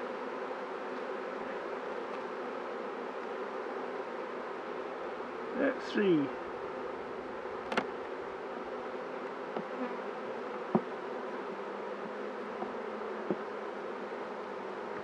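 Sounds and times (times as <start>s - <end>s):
honeybees buzzing: 0.0s - 15.0s
light knocks: 10.7s - 10.9s.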